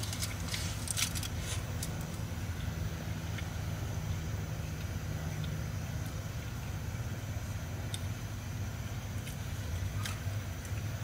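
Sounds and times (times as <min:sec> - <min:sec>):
foil crinkling: 0:00.0 - 0:02.1.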